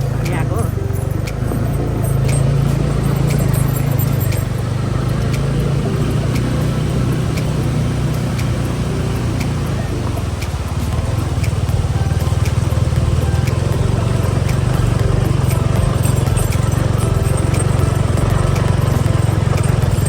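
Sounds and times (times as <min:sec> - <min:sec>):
light ticks or rattles: 0:00.0 - 0:20.0
vehicle engine running: 0:00.0 - 0:20.0.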